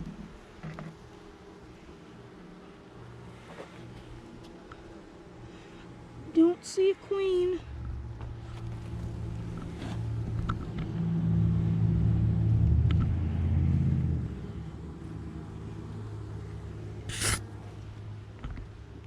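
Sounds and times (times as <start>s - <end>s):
low humming rumble: 7.6s - 18.3s
short sharp sound: 17.1s - 17.4s.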